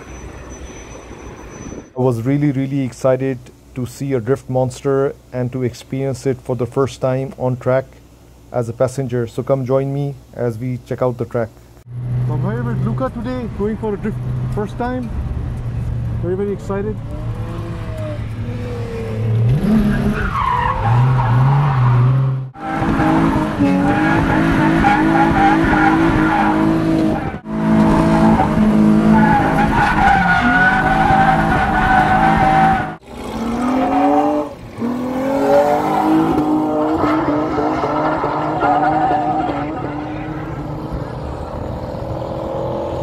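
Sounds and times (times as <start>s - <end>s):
tyres squealing and skidding: 0.0s - 2.0s, 17.1s - 42.5s
car engine revving: 11.9s - 43.0s.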